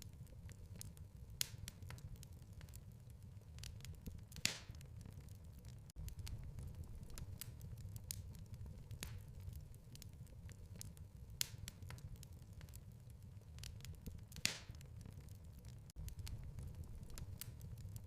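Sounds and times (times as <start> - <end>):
fire pops and snaps: 0.0 - 18.0
wood fire crackling: 0.0 - 18.0.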